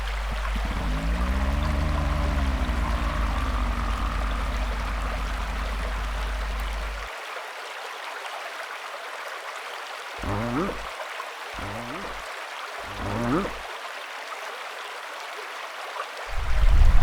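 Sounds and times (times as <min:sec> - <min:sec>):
low sound rising in pitch: 0:00.0 - 0:07.0, 0:10.2 - 0:10.8, 0:11.6 - 0:12.1
deep low rumble: 0:00.0 - 0:07.1, 0:16.4 - 0:17.0.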